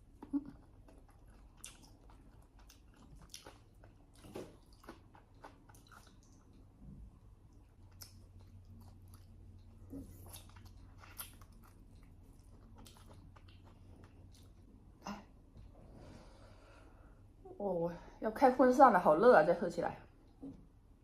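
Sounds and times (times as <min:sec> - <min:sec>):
person chewing food: 0:00.0 - 0:15.7.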